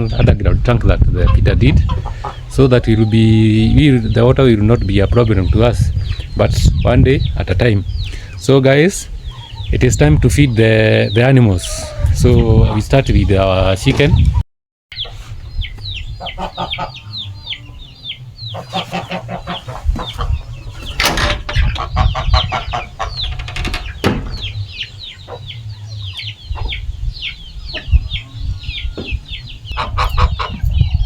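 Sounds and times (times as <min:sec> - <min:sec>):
chickens clucking: 0:00.0 - 0:31.0
sharp knocks: 0:23.3 - 0:24.6.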